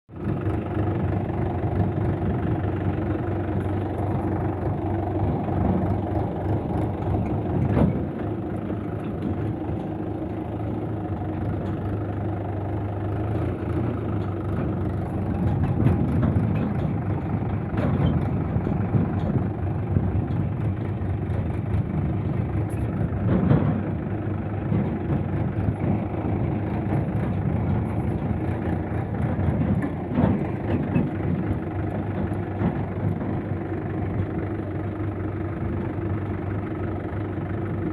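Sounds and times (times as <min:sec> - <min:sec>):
tractor diesel engine running: 0:00.1 - 0:37.9
sharp knocks and rattles: 0:02.8 - 0:12.2, 0:13.7 - 0:34.4.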